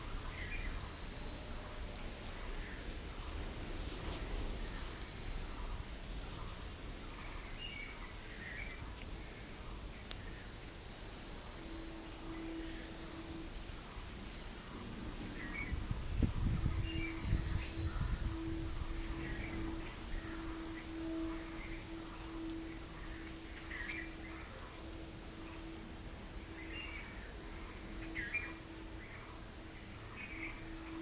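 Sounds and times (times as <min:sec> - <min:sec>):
steady low hum: 0:00.0 - 0:31.0
bird chirps: 0:16.5 - 0:31.0.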